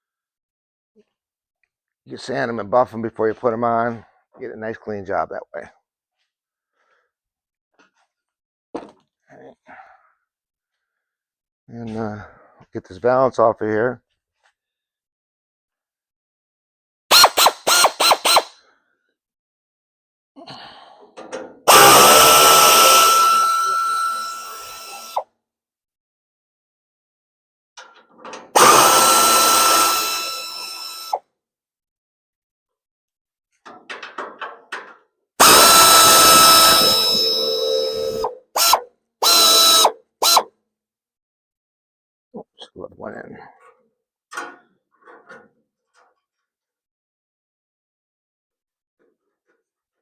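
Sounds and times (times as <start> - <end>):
power tool blipping: 17.1 - 18.5, 21.7 - 25.2, 28.6 - 31.2, 35.4 - 40.5
power tool hissing whir: 17.1 - 18.5, 21.7 - 25.2, 28.6 - 31.2, 35.4 - 40.4.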